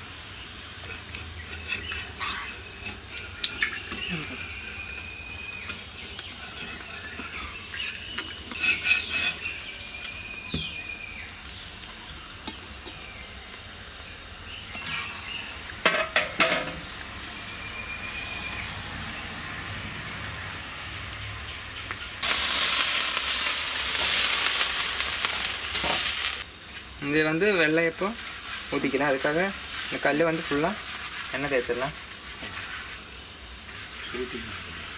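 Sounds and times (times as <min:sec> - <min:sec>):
metal utensils scraping a pan: 0:00.9 - 0:05.0, 0:05.8 - 0:09.5, 0:22.2 - 0:26.4, 0:27.5 - 0:34.9
food sizzling in hot oil: 0:22.1 - 0:26.5, 0:27.2 - 0:34.9.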